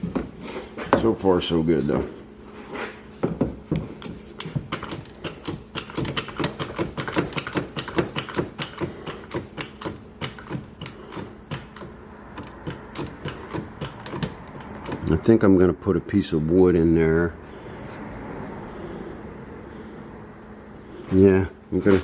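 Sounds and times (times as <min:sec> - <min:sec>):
hydraulic ram pump clicking: 0:03.8 - 0:15.2.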